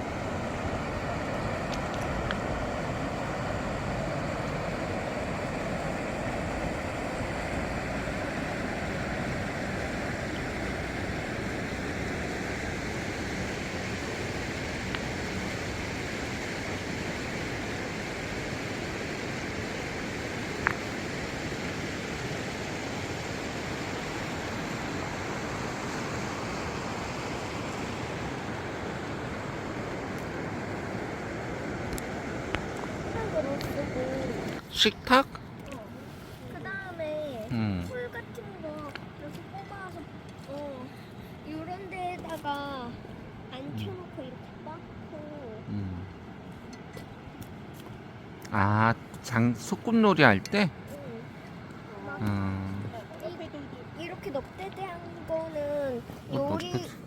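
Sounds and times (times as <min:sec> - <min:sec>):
river water rushing: 0:00.0 - 0:42.2.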